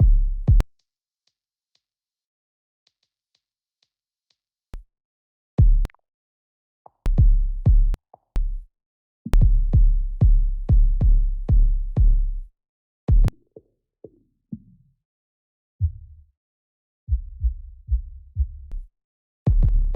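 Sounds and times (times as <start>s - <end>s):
drum machine kick drum hits: 0.0s - 0.6s, 5.6s - 5.9s, 7.1s - 8.0s, 9.3s - 12.2s, 13.1s - 13.4s, 17.1s - 18.7s, 19.5s - 19.9s.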